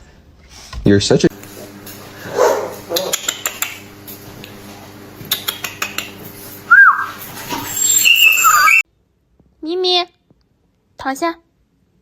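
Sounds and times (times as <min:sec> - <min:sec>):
dog whining: 0:06.7 - 0:08.8.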